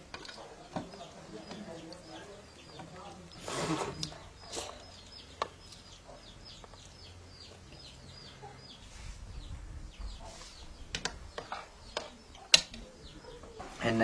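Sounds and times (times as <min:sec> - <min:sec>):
bird peeping: 0:04.1 - 0:13.8.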